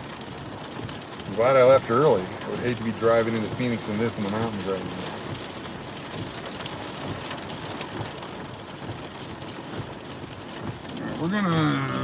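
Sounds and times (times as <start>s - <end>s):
heavy rain on a vehicle: 0.0s - 12.0s
raindrop ticks: 0.0s - 12.0s.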